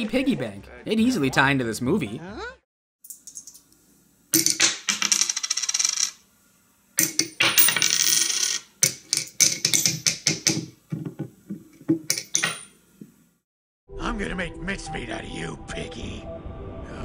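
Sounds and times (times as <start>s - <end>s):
coins jingling and clinking: 7.0s - 10.1s.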